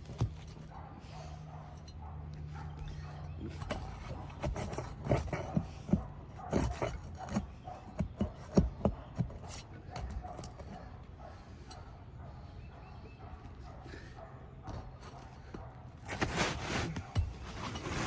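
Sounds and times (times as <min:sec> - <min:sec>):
scraping on shingles: 0:02.9 - 0:09.7, 0:16.0 - 0:18.0.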